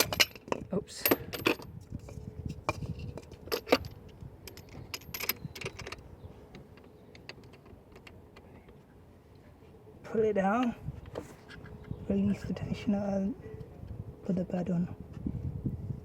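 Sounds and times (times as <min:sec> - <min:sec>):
hand tools clanking on metal: 0:00.0 - 0:01.7.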